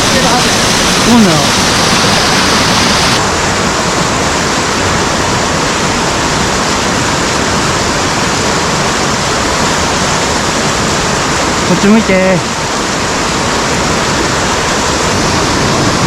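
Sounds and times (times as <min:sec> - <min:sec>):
stream water rushing over rocks: 0:00.0 - 0:16.0.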